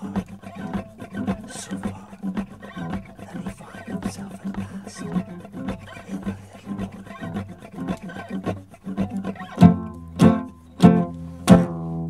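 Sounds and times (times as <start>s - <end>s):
loud strummed guitar chords: 0.0s - 12.0s
soft guitar picking: 0.0s - 12.0s.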